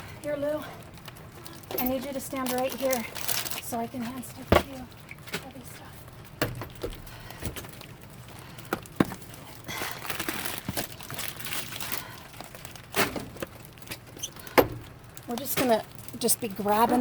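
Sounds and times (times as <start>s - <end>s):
cardboard crinkling and rustling: 0.9s - 5.9s, 7.5s - 14.5s.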